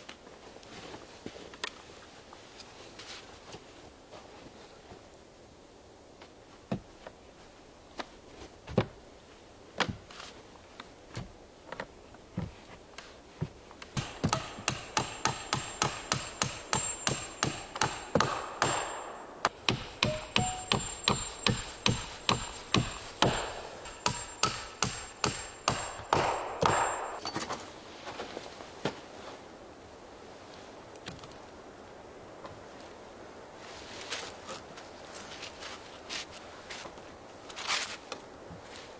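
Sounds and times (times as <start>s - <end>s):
hand tool striking wood: 13.4s - 27.6s.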